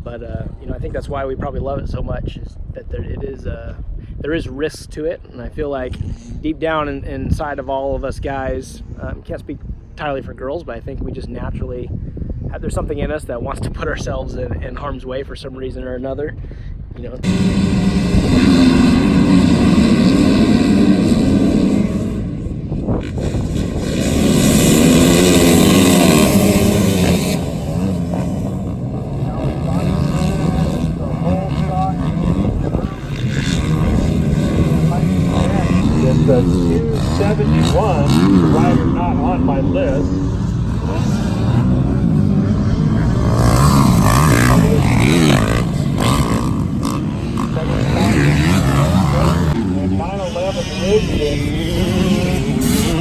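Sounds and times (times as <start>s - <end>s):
motocross bike engines revving: 17.1s - 53.0s.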